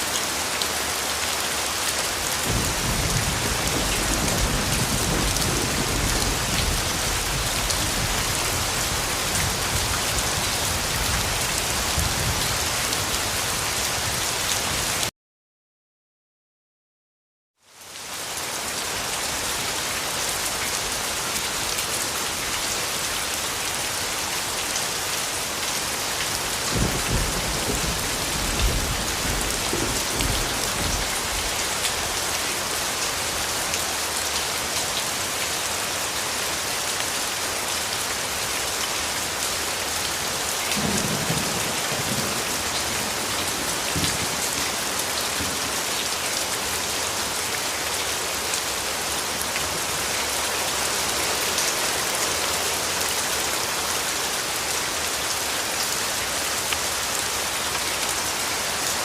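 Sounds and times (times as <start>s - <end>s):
heavy rain falling: 0.0s - 15.1s, 17.7s - 59.0s
thunder rumbles: 2.4s - 11.4s, 26.7s - 31.5s.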